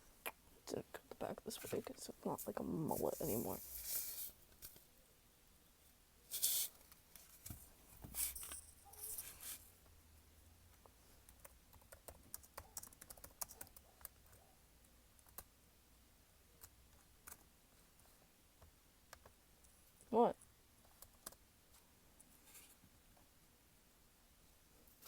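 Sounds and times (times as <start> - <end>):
handling noises: 6.3 - 9.6.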